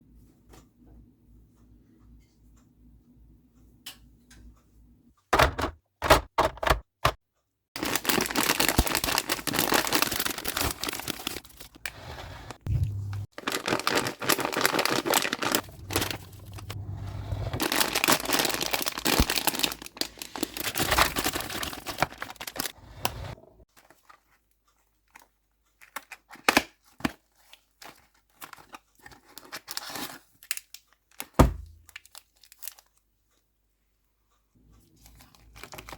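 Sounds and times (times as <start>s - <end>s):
plastic packets crinkling: 7.8s - 12.6s, 13.2s - 16.8s, 17.5s - 22.8s, 25.1s - 33.0s, 35.1s - 35.9s.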